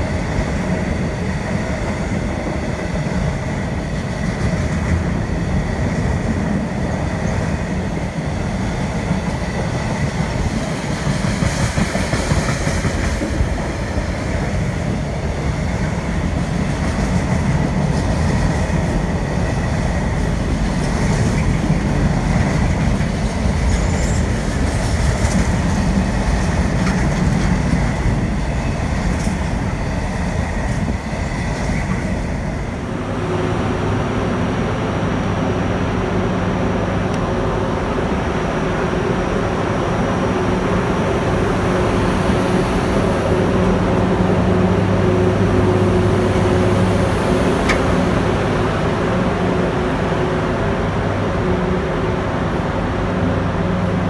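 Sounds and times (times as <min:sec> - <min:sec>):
locomotive equipment humming: 0:00.0 - 0:54.0
container wagons rolling on rails: 0:14.4 - 0:32.4.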